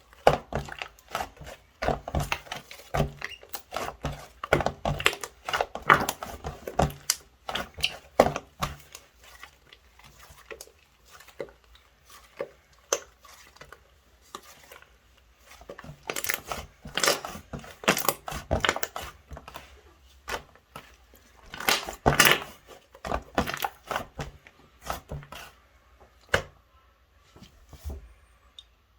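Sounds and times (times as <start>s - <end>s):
slime squeezed crackling and popping: 21.5s - 22.6s.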